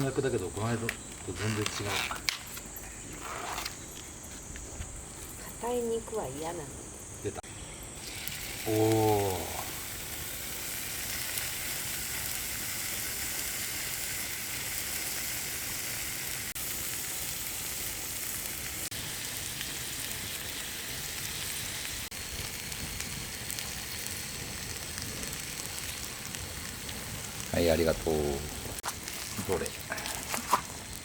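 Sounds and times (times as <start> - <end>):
meat sizzling on a griddle: 7.9 - 31.0.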